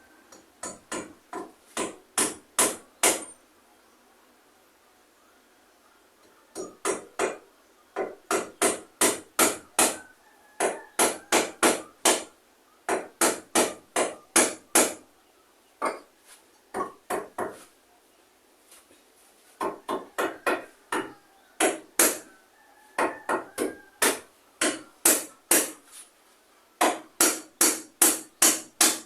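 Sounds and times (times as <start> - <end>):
hammer blows on nails: 23.0 - 25.9, 26.8 - 29.0.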